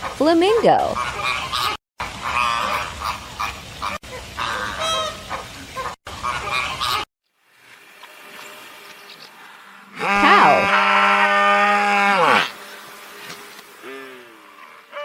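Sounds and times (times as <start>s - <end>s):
flamingos honking: 0.0s - 7.0s, 9.4s - 15.0s.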